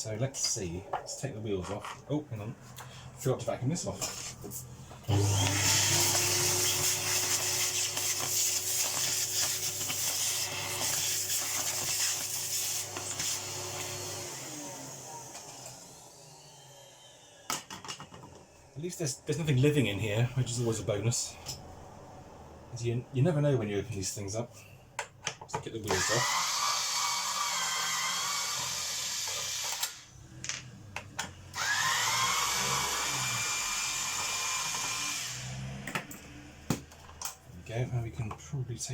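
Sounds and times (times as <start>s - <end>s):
vacuum cleaner running: 5.0s - 18.4s, 25.9s - 30.4s, 31.4s - 36.6s.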